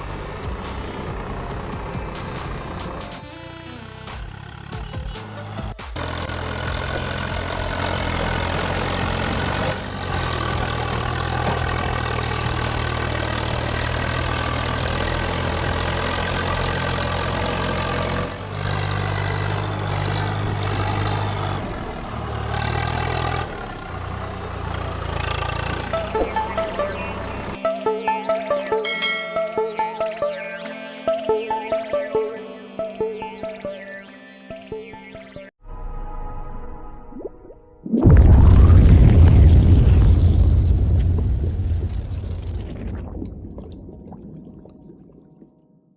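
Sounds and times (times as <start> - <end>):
tractor engine running: 0.0 - 27.6.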